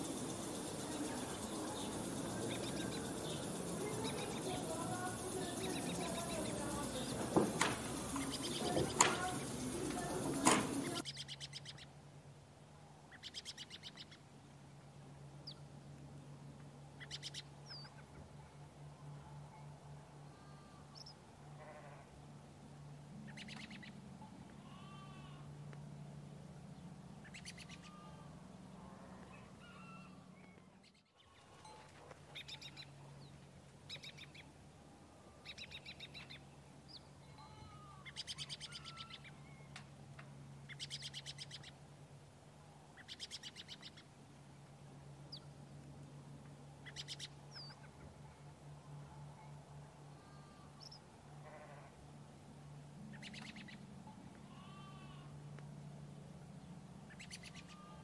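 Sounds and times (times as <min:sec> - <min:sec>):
birds chirping: 0:00.0 - 0:11.9, 0:23.2 - 0:25.3, 0:26.8 - 0:34.5, 0:46.8 - 0:48.3, 0:53.0 - 0:55.2
steady low hum: 0:00.0 - 0:58.0
high-pitched bird trills: 0:07.9 - 0:11.8, 0:37.2 - 0:39.8.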